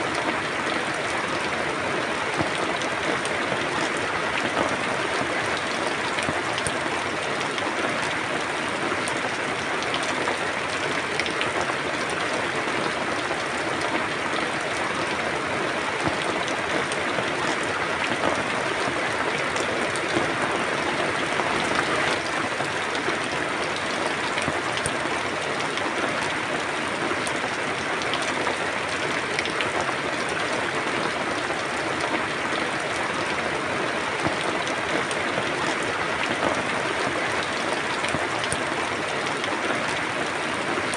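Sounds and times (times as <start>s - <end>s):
raindrops pattering on surface: 0.0s - 40.9s
steady rain hiss: 0.0s - 40.9s.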